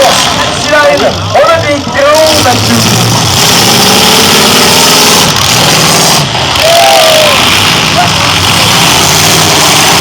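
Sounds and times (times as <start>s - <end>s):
car engines running loud: 0.0s - 10.0s
voices: 6.6s - 9.0s.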